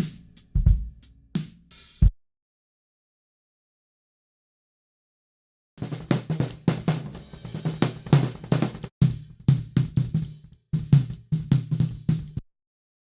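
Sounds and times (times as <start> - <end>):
drum kit playing: 0.0 - 2.1, 5.8 - 12.4.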